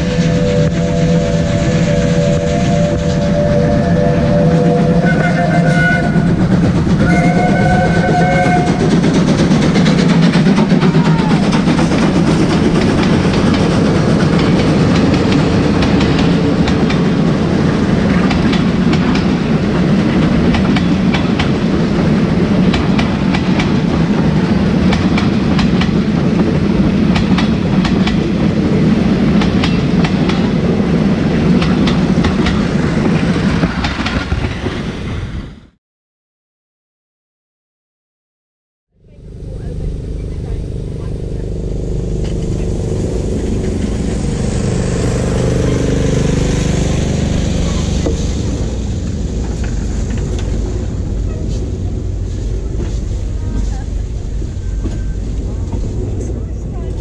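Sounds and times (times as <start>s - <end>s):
chord-like train signal: 0.0s - 23.3s, 39.0s - 57.0s
heavy train rumble: 0.0s - 35.8s, 38.9s - 57.0s
wheels clicking over rail joints: 5.7s - 34.8s, 41.9s - 57.0s.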